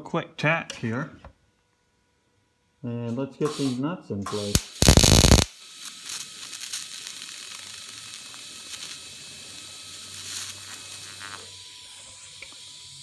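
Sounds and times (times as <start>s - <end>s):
welding arc sizzling: 3.5s - 13.0s.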